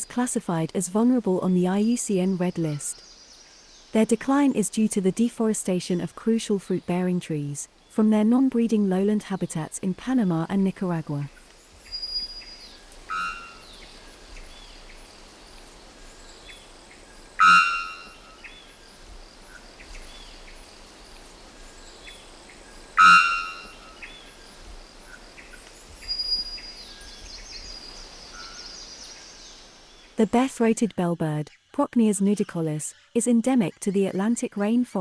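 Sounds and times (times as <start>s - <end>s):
faint insects calling: 0.0s - 5.1s, 11.2s - 30.2s
faint forest birds: 0.0s - 35.0s.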